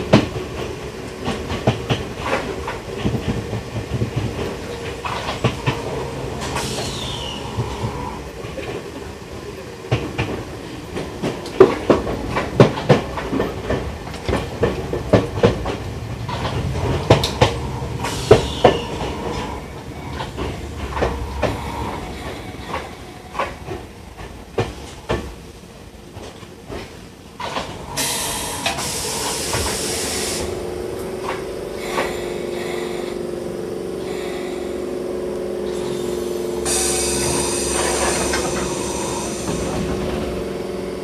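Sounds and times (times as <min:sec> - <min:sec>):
wheels clicking over rail joints: 0:00.0 - 0:41.0
compressed air hiss: 0:06.4 - 0:07.4, 0:28.0 - 0:30.5, 0:36.6 - 0:40.0.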